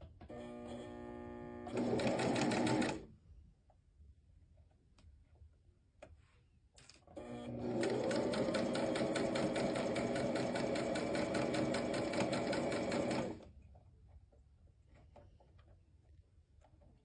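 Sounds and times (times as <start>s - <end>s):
sewing machine stitching: 0.3s - 3.1s, 7.2s - 13.5s.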